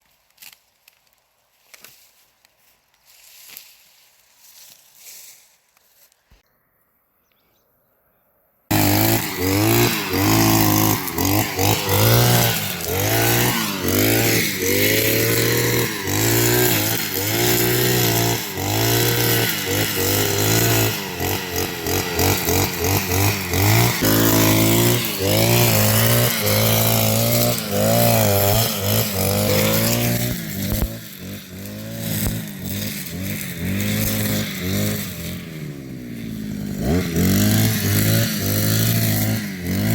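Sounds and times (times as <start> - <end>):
lawn mower engine revving: 8.7 - 39.9.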